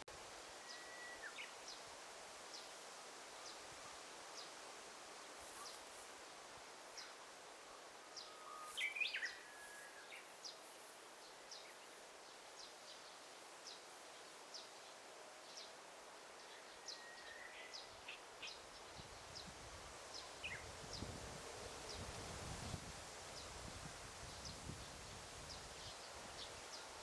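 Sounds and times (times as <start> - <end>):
soft steady hiss: 0.0 - 27.0
bird chirping: 7.0 - 12.0.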